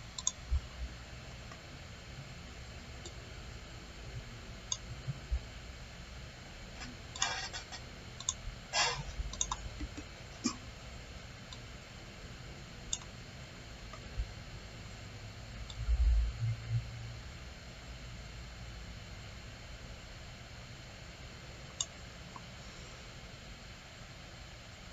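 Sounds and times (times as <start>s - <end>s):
faint low room hum: 0.0s - 24.9s
computer mouse clicks: 0.1s - 0.4s, 7.1s - 8.4s, 9.3s - 10.6s, 12.9s - 13.1s, 21.8s - 22.5s.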